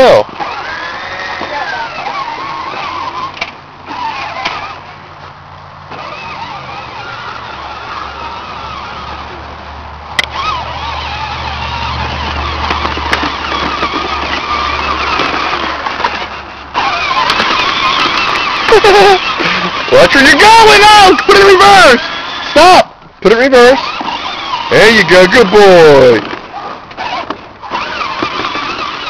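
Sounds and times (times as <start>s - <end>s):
toy tractor motor whirring: 0.0s - 5.0s, 5.9s - 29.0s
sharp click: 10.2s - 10.4s.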